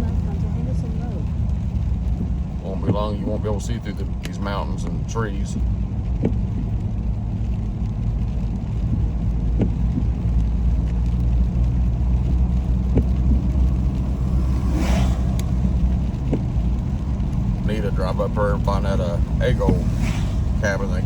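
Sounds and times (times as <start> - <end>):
car engine and tyres on wet road: 0.0 - 21.0
hiss: 13.9 - 16.3, 19.5 - 21.0.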